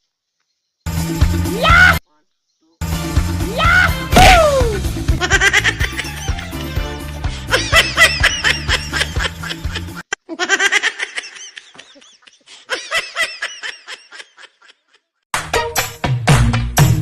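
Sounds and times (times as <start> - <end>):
music with heavy bass line: 2.8 - 10.0
high-pitched giggling: 5.2 - 6.5, 7.5 - 15.2.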